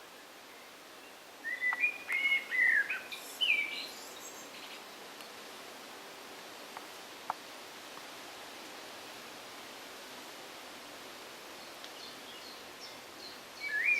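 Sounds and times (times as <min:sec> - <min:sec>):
songbird singing: 0:00.0 - 0:05.4, 0:11.5 - 0:13.9
faint steady hiss: 0:00.0 - 0:13.9.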